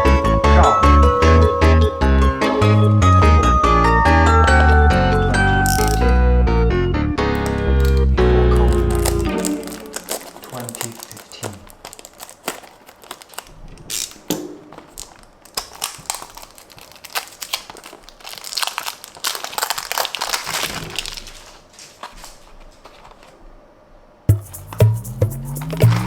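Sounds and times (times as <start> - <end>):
packaging crinkling and rustling: 5.7 - 6.1, 7.4 - 23.6.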